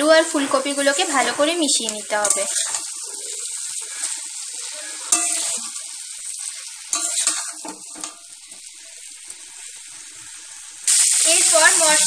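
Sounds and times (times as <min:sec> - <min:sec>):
frying sizzle: 0:00.0 - 0:12.0
spatula scraping pan: 0:00.9 - 0:05.8, 0:06.9 - 0:08.3.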